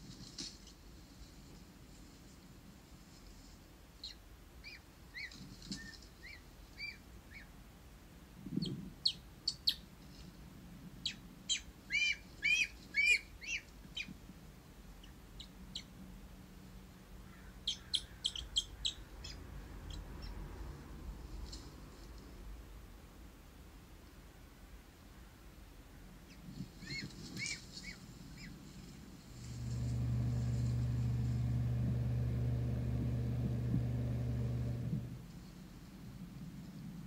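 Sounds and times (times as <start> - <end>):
small birds chirping: 4.0 - 7.6, 8.5 - 10.3, 11.0 - 14.2, 14.9 - 16.0, 17.2 - 20.4, 26.2 - 28.8.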